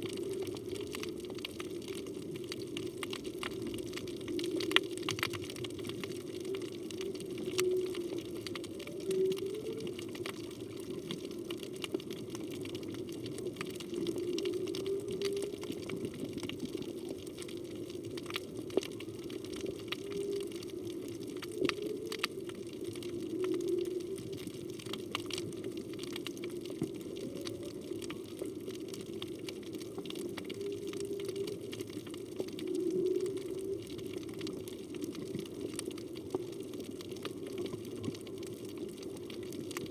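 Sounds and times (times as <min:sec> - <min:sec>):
whale song moaning: 0:00.0 - 0:02.3, 0:03.3 - 0:11.4, 0:12.6 - 0:18.4, 0:19.2 - 0:25.7, 0:26.6 - 0:29.0, 0:29.8 - 0:36.0
crackle of reef clicks: 0:00.0 - 0:39.9.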